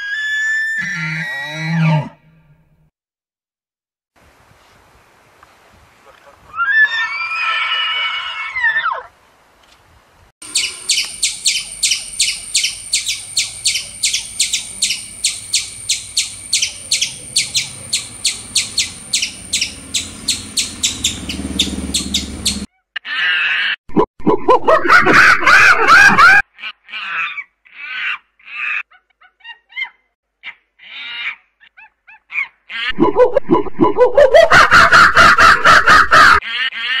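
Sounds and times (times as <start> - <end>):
squirrel chirping: 10.4 - 22.7
monkeys squealing chirps: 10.4 - 23.8.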